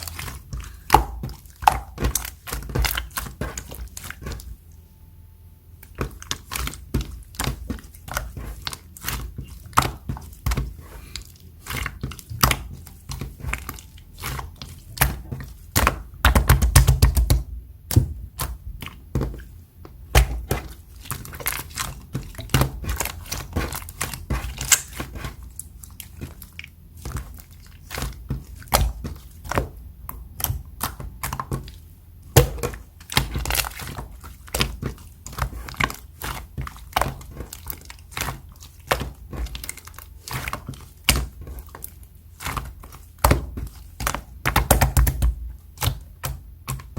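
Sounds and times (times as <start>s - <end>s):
slime squeezed with sticky pops: 22.5s - 25.5s.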